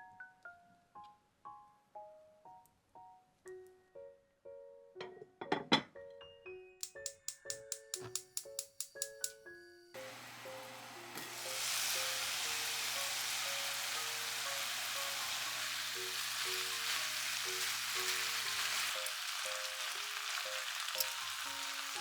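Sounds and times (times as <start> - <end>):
light background music: 0.0 - 22.0
food sizzling in frying pan: 10.0 - 22.0.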